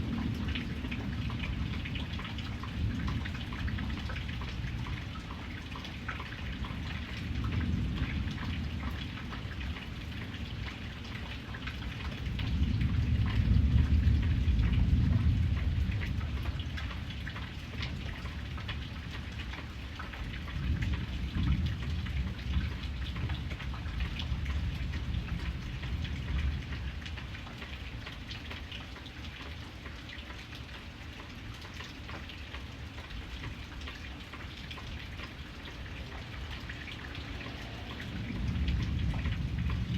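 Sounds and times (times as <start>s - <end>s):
rain falling: 0.0s - 39.9s
raindrops ticking: 0.0s - 39.9s
distant thunder rolling: 35.6s - 39.9s.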